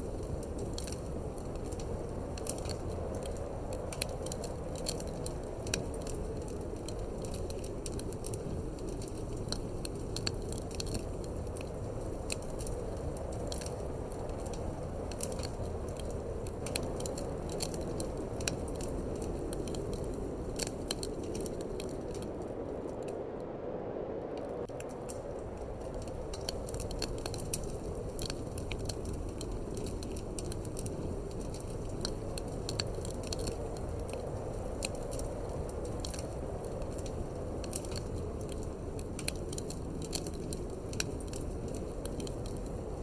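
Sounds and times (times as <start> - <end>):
wood fire crackling: 0.0 - 43.0
wind rushing: 22.0 - 26.3.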